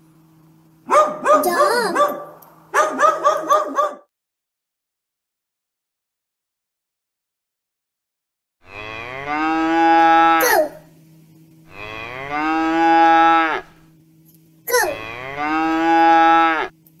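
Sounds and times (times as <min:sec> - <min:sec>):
cow mooing: 0:08.6 - 0:10.7, 0:11.7 - 0:13.8, 0:14.8 - 0:16.7.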